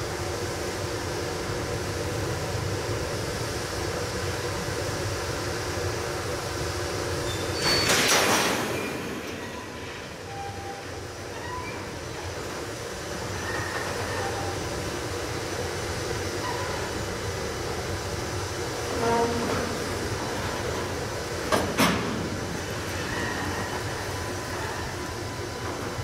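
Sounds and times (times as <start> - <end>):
electric locomotive starting: 0.0 - 26.0
faint short squeaks: 7.3 - 12.0, 13.3 - 14.6, 18.9 - 19.8, 22.9 - 24.0.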